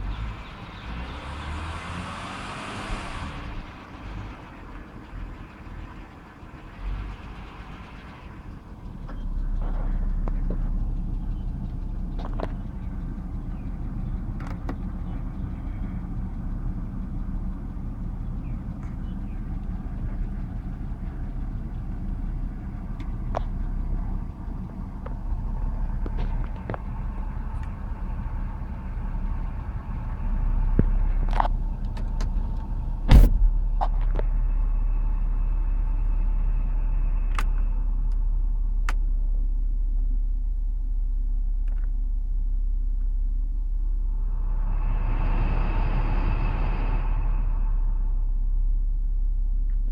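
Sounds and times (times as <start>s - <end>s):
car engine running: 0.0s - 49.9s
loud clunk: 33.0s - 34.2s.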